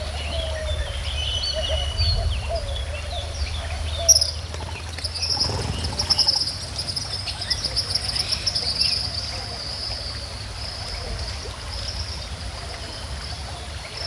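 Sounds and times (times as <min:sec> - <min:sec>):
small birds chirping: 0:00.0 - 0:10.2
flowing stream: 0:00.0 - 0:14.0.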